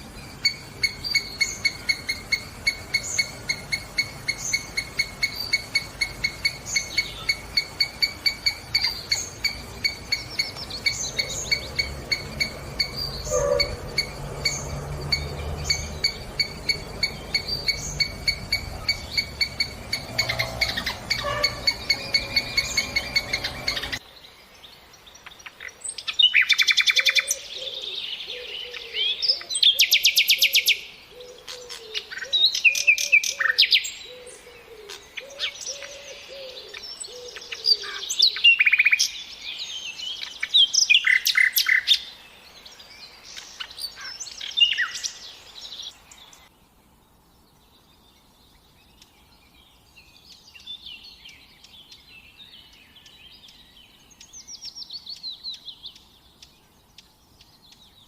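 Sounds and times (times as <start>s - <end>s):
songbirds singing and chirping: 0.0s - 58.0s
low wavering bird call: 0.4s - 24.0s.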